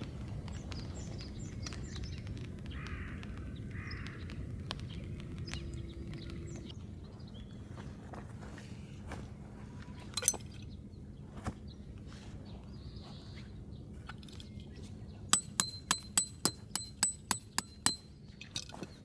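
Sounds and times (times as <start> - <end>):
hammer striking metal tent peg: 15.4 - 18.2.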